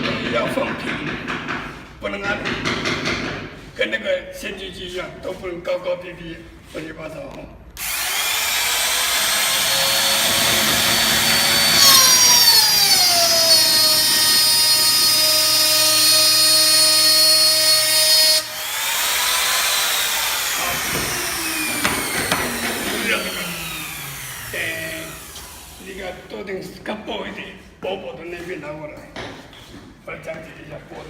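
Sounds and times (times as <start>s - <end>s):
power tool motor cutting wood: 7.8s - 26.0s.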